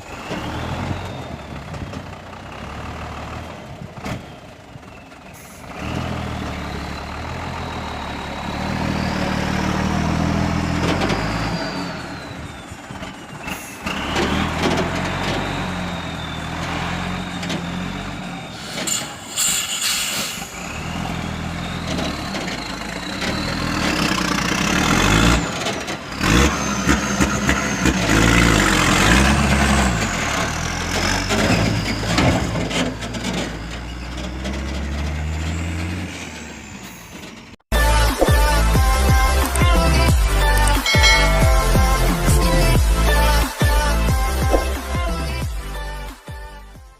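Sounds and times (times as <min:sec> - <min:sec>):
diesel truck engine revving: 0:00.0 - 0:46.8
short sharp hisses: 0:18.6 - 0:20.6
high whine: 0:37.8 - 0:45.8.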